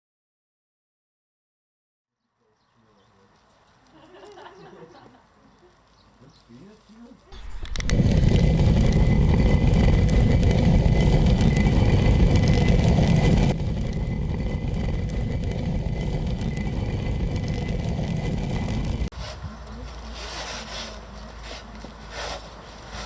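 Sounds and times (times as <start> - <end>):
millstones grinding: 7.3 - 19.4.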